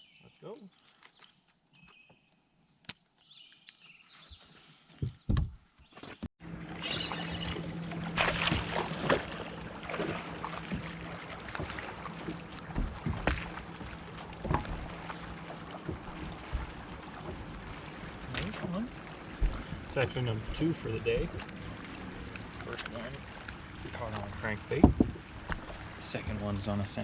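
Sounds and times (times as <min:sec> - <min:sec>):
water: 0:00.0 - 0:03.0, 0:06.4 - 0:27.0
knocks on a fishing boat: 0:05.3 - 0:05.6, 0:11.6 - 0:15.0, 0:15.8 - 0:17.5, 0:19.4 - 0:19.9, 0:24.7 - 0:25.6
boat motor hum: 0:06.4 - 0:27.0
wind noise: 0:24.7 - 0:25.2.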